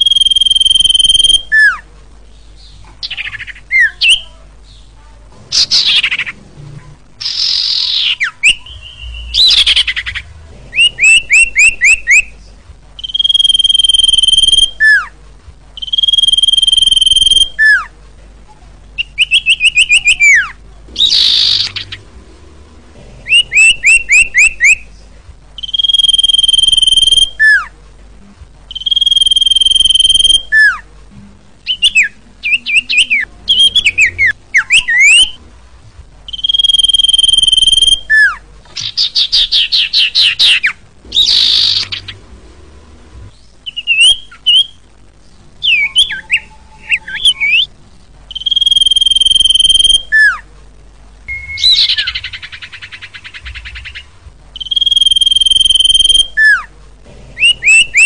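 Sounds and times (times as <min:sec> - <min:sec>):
bird singing whistles: 0:00.0 - 0:01.8, 0:03.0 - 0:04.3, 0:07.2 - 0:12.3, 0:13.0 - 0:15.1, 0:15.8 - 0:17.9, 0:19.0 - 0:22.0, 0:23.3 - 0:24.8, 0:25.6 - 0:27.7, 0:28.7 - 0:30.8, 0:31.7 - 0:35.4, 0:36.3 - 0:42.2, 0:43.6 - 0:44.8, 0:45.6 - 0:47.7, 0:48.3 - 0:50.4, 0:51.3 - 0:56.7, 0:57.4 - 0:58.0.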